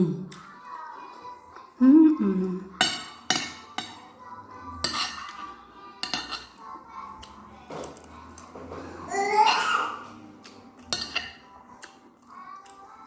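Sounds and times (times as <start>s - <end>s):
faint background music: 0.0s - 13.0s
cutlery clinking on a plate: 2.8s - 4.1s, 4.8s - 6.6s, 10.8s - 12.0s.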